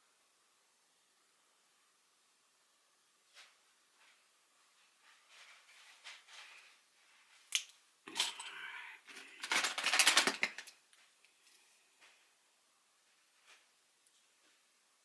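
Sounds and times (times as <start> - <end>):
small hard objects clattering: 9.1 - 10.8.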